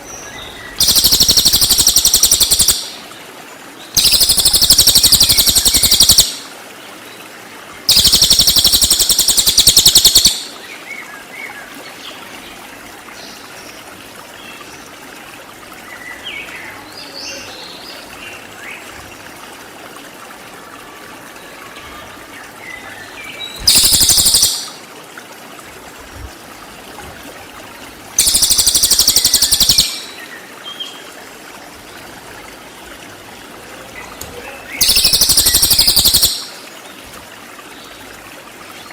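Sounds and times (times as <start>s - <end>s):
bird high-pitched trilling bursts: 0.8s - 3.0s, 4.0s - 6.4s, 7.9s - 10.5s, 23.6s - 24.8s, 28.2s - 30.2s, 34.8s - 36.6s.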